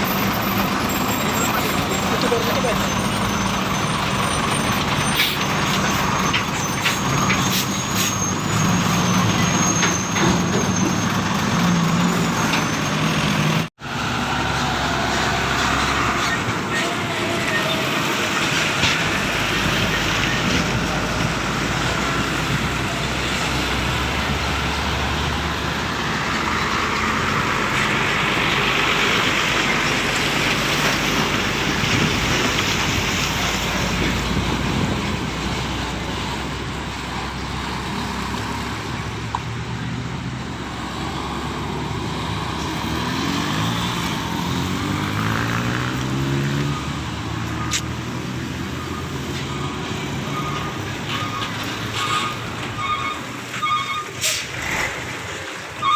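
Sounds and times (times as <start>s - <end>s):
vehicles passing on a road: 0.0s - 55.9s
vehicle engine speeding up: 40.6s - 49.1s.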